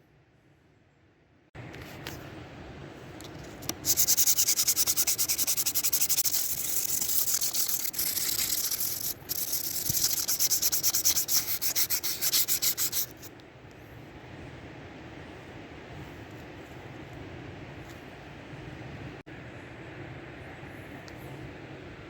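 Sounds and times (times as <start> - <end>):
hand sanding strokes: 3.7 - 13.3.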